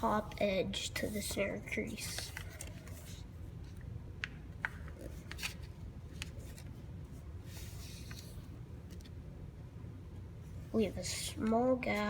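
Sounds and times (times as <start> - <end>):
low steady hum: 0.0 - 12.0
paper being folded and creased: 1.0 - 3.8, 4.9 - 6.8, 7.5 - 9.1
paper rustling: 1.0 - 3.8, 4.9 - 6.8, 7.5 - 9.2.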